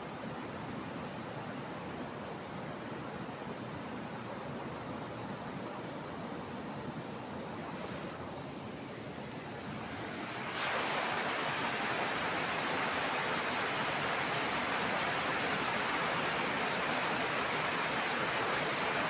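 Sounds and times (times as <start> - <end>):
heavy rain falling: 10.2 - 19.0.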